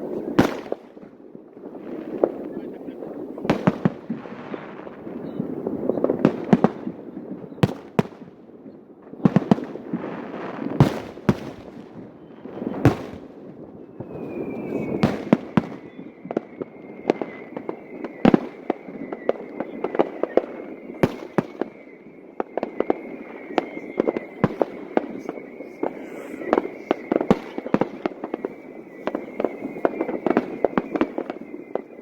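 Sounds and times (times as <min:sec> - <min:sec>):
firework crackling: 0:00.0 - 0:32.0
high falling whistle: 0:13.8 - 0:32.0.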